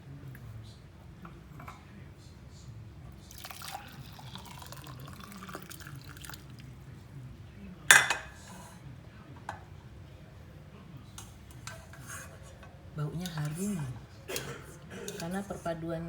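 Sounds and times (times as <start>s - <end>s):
dish clinking: 7.9s - 8.8s, 11.1s - 15.7s
kitchenware handling: 7.9s - 8.8s, 11.1s - 15.7s.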